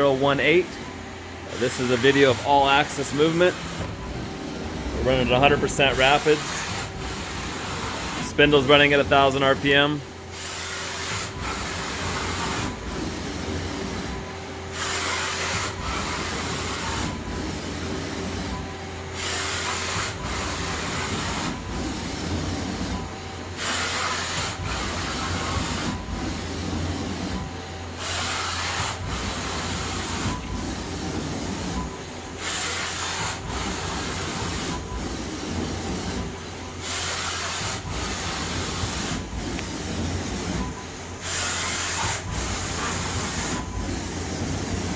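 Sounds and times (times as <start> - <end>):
machine hum: 0.0 - 10.4, 24.4 - 44.9.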